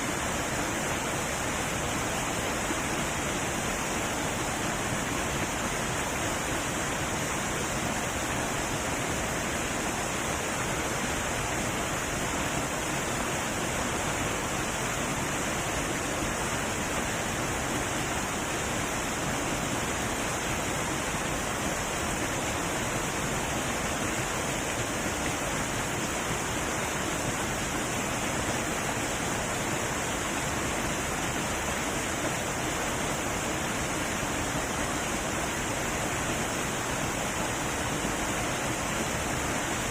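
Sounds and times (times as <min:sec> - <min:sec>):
heavy waterfall pouring: 0:00.0 - 0:39.9.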